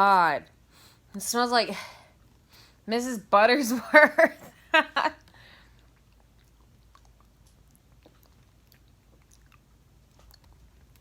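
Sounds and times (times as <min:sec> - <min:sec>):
faint chewing of candy: 0:05.2 - 0:11.0.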